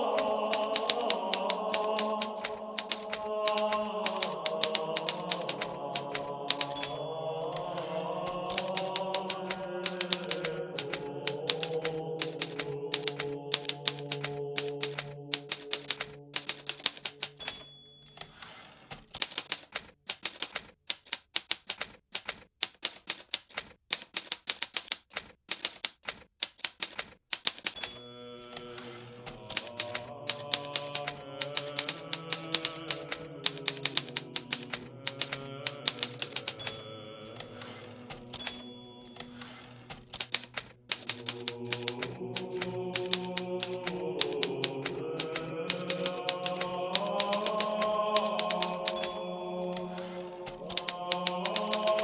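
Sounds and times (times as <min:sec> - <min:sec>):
typewriter keys clicking: 0:00.0 - 0:52.0
typewriter bell ding: 0:00.1 - 0:20.5, 0:27.4 - 0:34.5, 0:35.1 - 0:41.9, 0:45.7 - 0:52.0.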